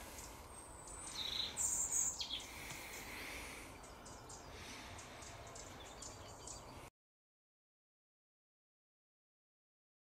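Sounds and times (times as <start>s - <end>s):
birds chirping: 0.0s - 6.9s.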